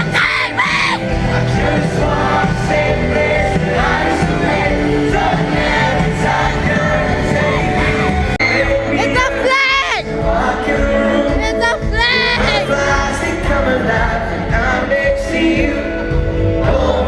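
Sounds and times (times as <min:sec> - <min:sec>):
audience shrieking: 0:00.0 - 0:01.0
band playing loudly: 0:00.0 - 0:17.0
voices singing: 0:00.0 - 0:17.0.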